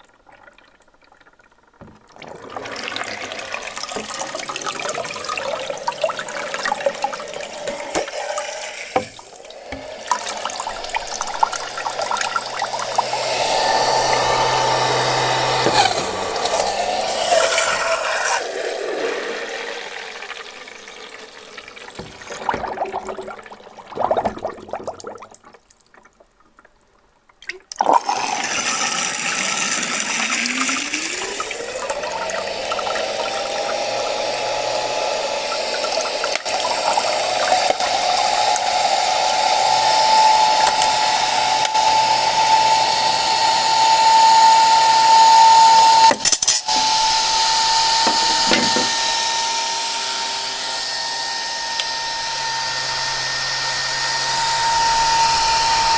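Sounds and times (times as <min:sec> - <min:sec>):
water splashing: 0:00.0 - 0:28.2
vacuum cleaner motor whine: 0:01.8 - 0:23.2, 0:28.0 - 0:55.9.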